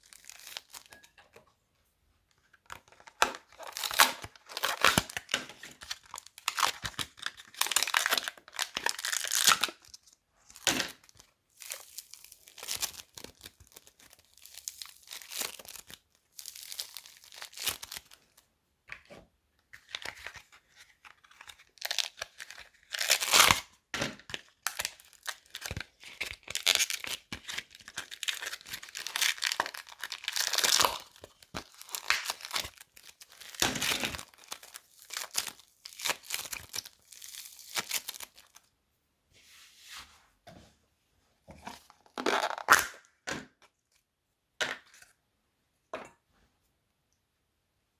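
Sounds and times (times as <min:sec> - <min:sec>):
crunchy slime crackling: 0:24.7 - 0:38.6.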